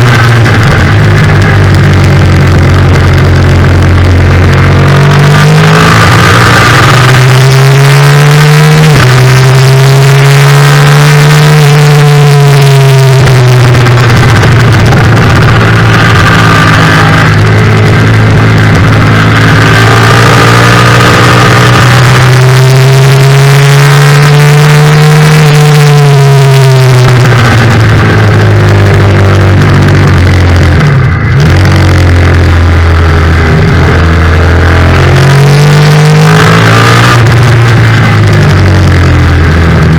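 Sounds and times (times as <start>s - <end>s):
loud motorcycle engine revving: 0.0s - 39.9s.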